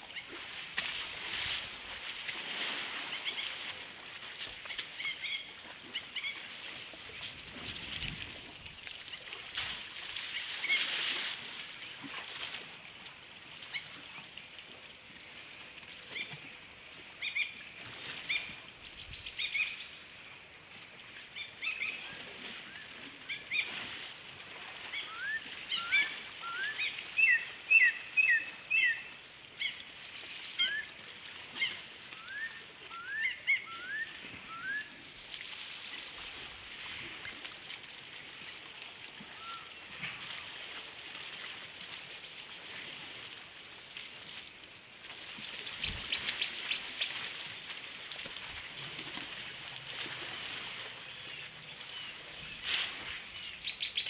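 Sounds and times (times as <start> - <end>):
steady high hiss: 0.0 - 5.6.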